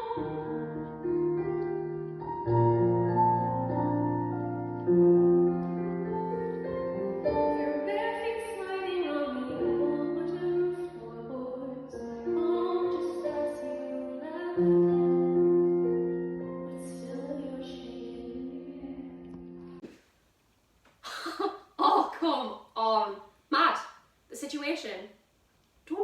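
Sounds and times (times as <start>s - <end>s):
woman singing: 0.0s - 1.2s, 7.5s - 15.5s
piano accompaniment: 0.0s - 19.8s.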